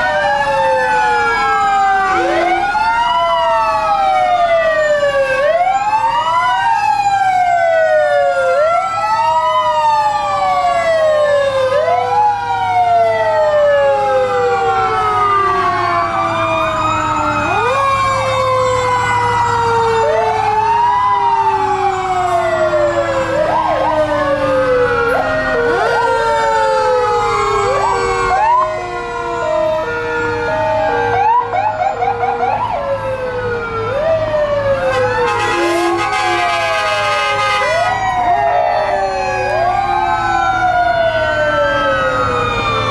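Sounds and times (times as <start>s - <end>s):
electronic wail sirens: 0.0s - 42.9s
fast yelp siren: 0.0s - 42.9s
mechanical siren winding down: 0.0s - 42.9s
alternating two-note siren tone: 0.9s - 5.6s.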